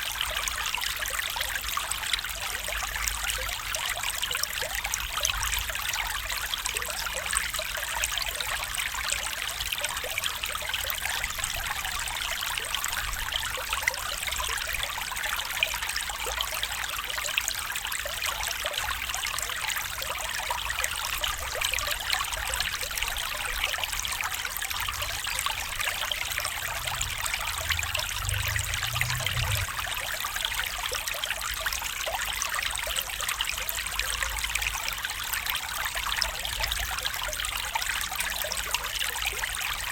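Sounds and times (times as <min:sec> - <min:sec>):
running water trickling: 0:00.0 - 0:39.9
low rumble: 0:26.3 - 0:30.1.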